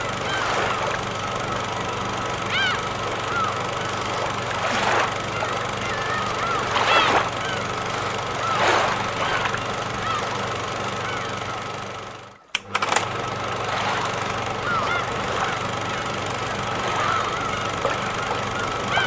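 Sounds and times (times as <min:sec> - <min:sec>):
low steady hum: 0:00.0 - 0:19.0
sharp clicks: 0:12.5 - 0:13.2.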